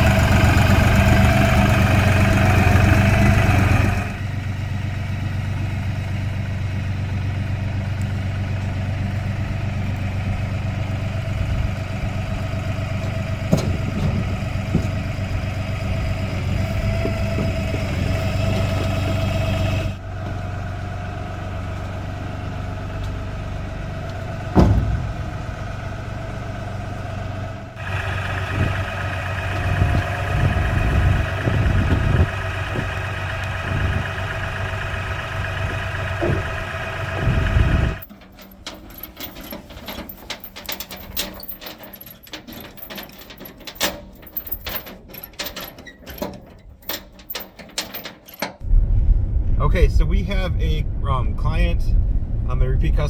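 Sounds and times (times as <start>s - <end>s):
diesel engine idling: 0.0s - 41.9s, 48.6s - 53.0s
sharp clanks: 24.1s - 26.5s, 37.9s - 49.6s.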